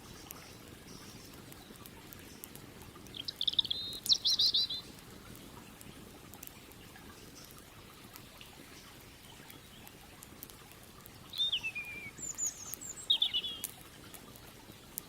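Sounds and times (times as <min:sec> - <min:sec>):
campfire crackling: 0:00.0 - 0:15.0
birds chirping: 0:03.1 - 0:05.6, 0:11.2 - 0:14.4.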